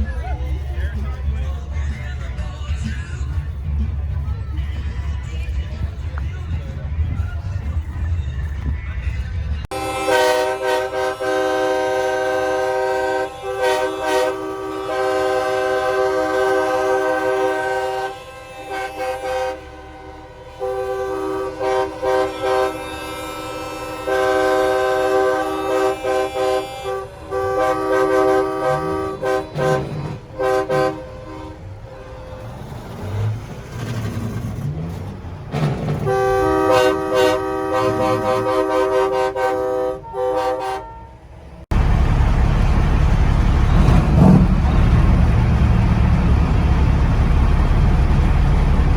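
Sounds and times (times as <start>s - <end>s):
truck air horns blasting: 9.7s - 33.6s, 36.0s - 42.4s.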